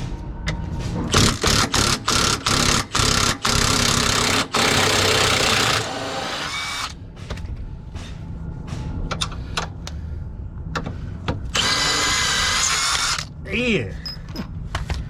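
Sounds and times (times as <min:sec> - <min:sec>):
impact wrench bursts: 0:01.1 - 0:07.0, 0:11.5 - 0:13.3.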